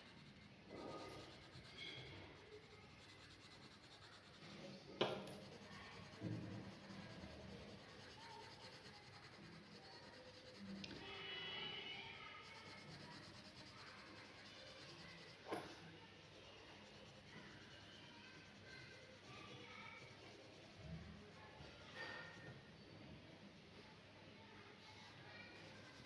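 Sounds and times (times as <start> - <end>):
drawing tool scratching paper: 0.0 - 4.7, 5.3 - 11.0, 12.3 - 15.6
soft knock: 5.0 - 5.4.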